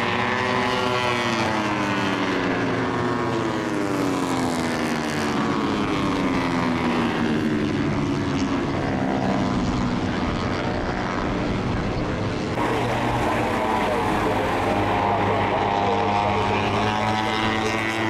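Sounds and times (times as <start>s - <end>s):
racing motorcycles passing: 12.5s - 18.0s.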